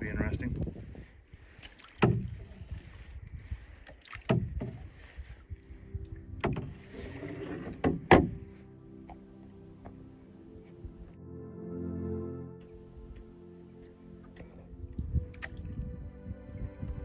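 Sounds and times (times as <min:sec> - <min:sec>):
paddle splashes and knocks: 0:01.4 - 0:09.2
soft background music: 0:04.6 - 0:17.0.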